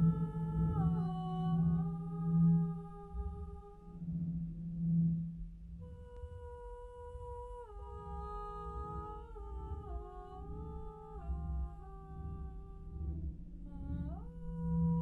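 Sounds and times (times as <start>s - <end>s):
low hum and rumble: 0.0s - 15.0s
pitched humming tone: 0.0s - 15.0s.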